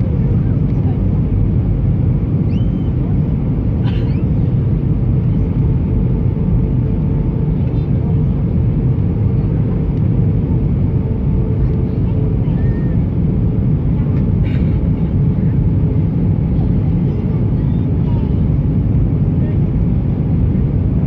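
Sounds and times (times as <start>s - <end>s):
airplane cabin engine roar: 0.0s - 21.0s.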